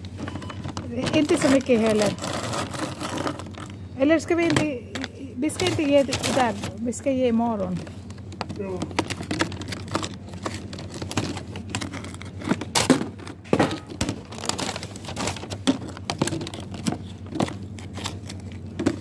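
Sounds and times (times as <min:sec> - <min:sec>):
bag crinkling and rustling: 0:01.1 - 0:03.8, 0:09.0 - 0:19.0
candy clicking and knocking: 0:07.6 - 0:19.0.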